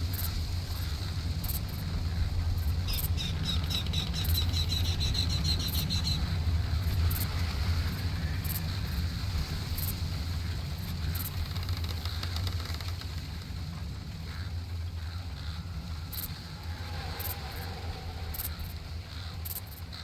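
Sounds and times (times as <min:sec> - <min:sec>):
bird chirping rapidly: 0:02.9 - 0:06.2
steady low rumble: 0:13.2 - 0:20.0.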